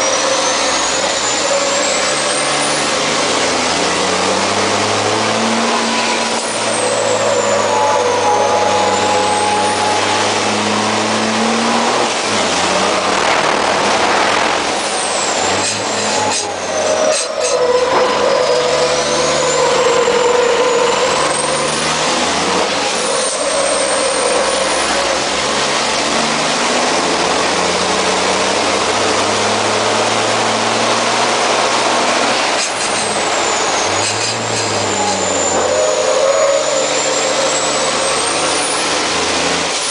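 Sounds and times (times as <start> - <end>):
truck diesel engine under load: 0.0 - 39.9
high whistle: 6.6 - 10.4.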